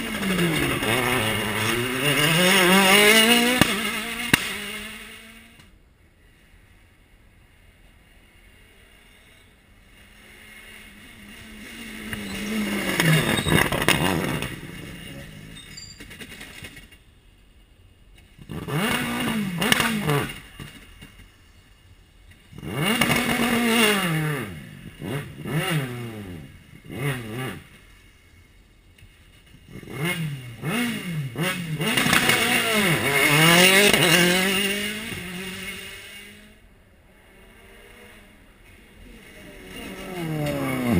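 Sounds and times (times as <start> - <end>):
car engine revving hard: 0.0 - 5.5, 22.6 - 27.6, 29.7 - 36.4.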